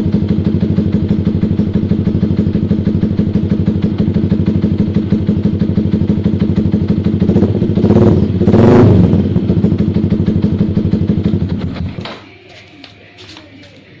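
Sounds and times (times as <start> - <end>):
motorcycle idling and blipping: 0.0 - 14.0.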